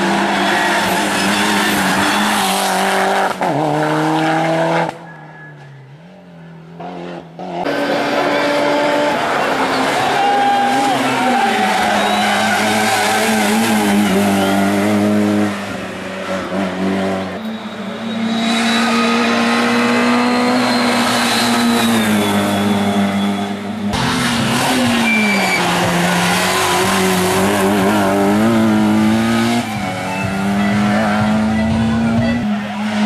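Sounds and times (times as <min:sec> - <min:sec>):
racing car engine at high revs: 0:00.0 - 0:33.0.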